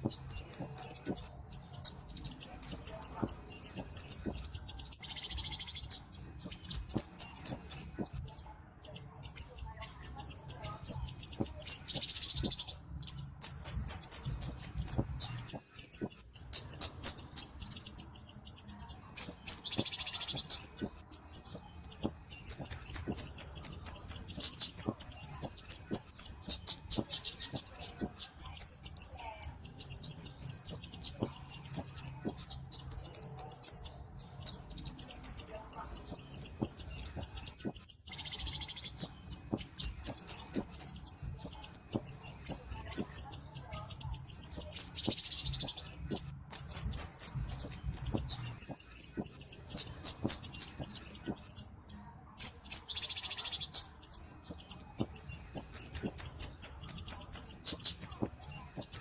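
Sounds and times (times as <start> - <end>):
bird high chipping song: 0.0 - 59.0.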